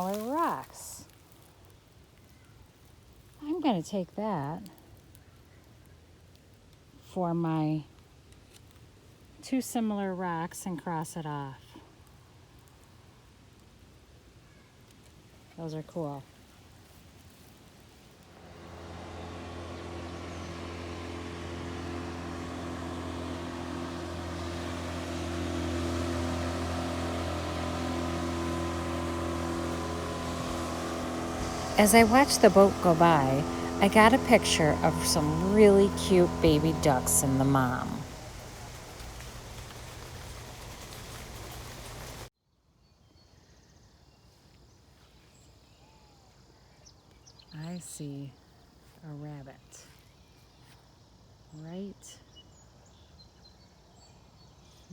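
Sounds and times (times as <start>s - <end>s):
motorboat engine drone: 18.3s - 42.3s
rushing noise with low hum: 18.3s - 42.3s.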